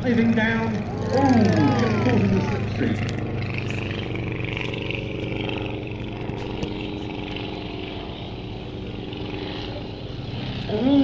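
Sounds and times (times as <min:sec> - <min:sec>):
light aircraft engine droning: 0:00.0 - 0:11.0.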